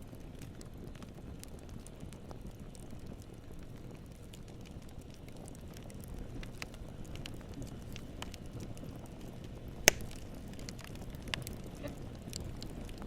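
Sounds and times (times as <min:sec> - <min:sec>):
campfire burning: 0:00.0 - 0:13.0
fire crackles: 0:00.0 - 0:13.0
loud sharp pop of fire: 0:09.8 - 0:11.9.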